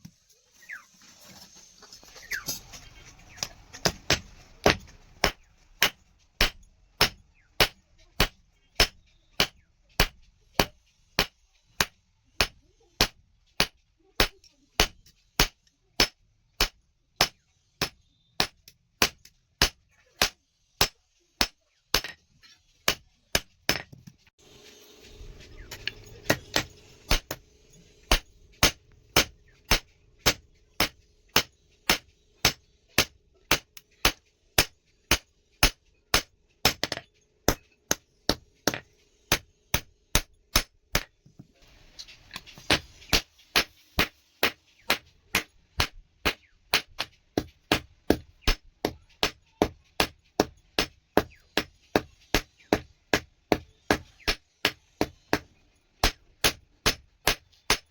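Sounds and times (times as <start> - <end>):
hammer beating steel on anvil: 25.6 - 41.2.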